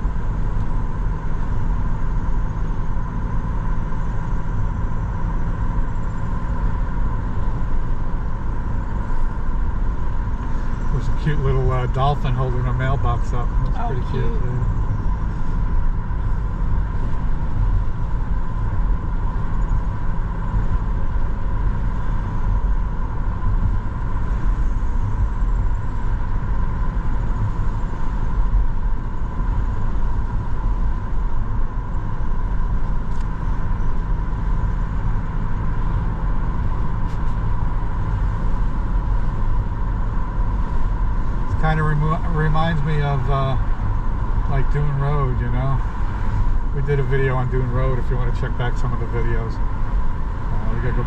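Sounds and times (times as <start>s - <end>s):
car cabin road rumble: 0.0s - 51.0s.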